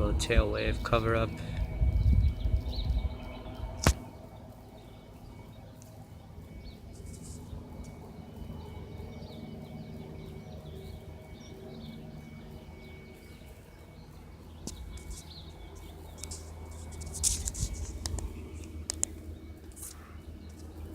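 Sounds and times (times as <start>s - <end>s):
distant aircraft engine drone: 0.0s - 20.9s
small birds chirping: 0.0s - 20.9s
sharp clicks: 14.6s - 20.8s.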